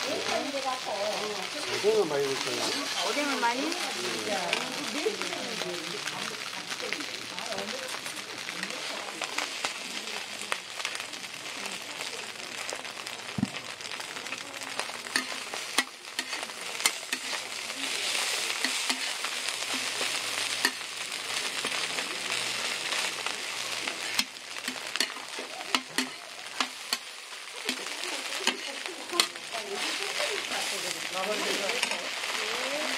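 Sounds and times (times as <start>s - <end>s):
food sizzling on a griddle: 0.0s - 32.9s
metal spatula scraping a griddle: 2.6s - 3.5s, 15.0s - 20.9s, 21.5s - 32.1s.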